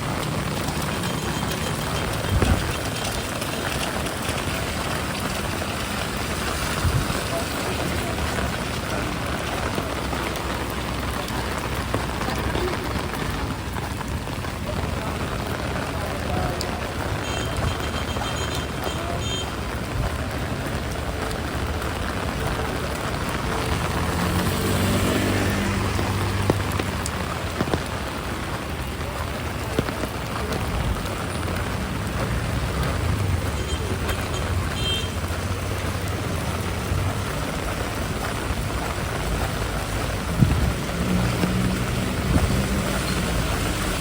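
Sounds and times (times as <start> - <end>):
heavy rain on street: 0.0 - 44.0
vehicle engine passing: 21.9 - 27.4, 31.0 - 44.0.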